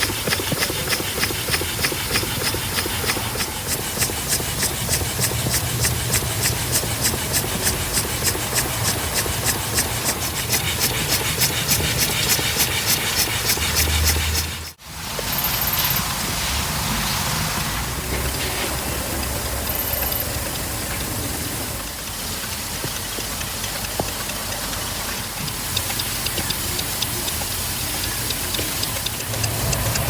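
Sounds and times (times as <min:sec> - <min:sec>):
small model engine running: 0:00.0 - 0:14.8, 0:25.4 - 0:30.0.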